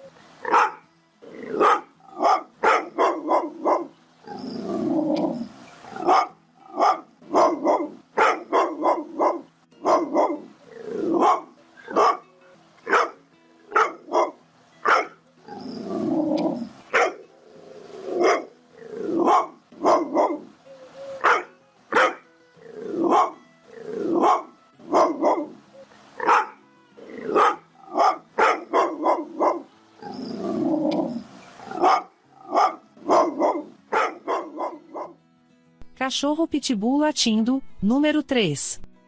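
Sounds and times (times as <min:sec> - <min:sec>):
dog barking angrily: 0:00.4 - 0:00.8, 0:01.5 - 0:04.4, 0:06.0 - 0:12.2, 0:12.9 - 0:15.2, 0:16.4 - 0:17.2, 0:18.1 - 0:20.5, 0:21.2 - 0:22.2, 0:23.0 - 0:23.4, 0:24.0 - 0:25.5, 0:26.2 - 0:26.6, 0:27.2 - 0:30.2, 0:31.7 - 0:35.2.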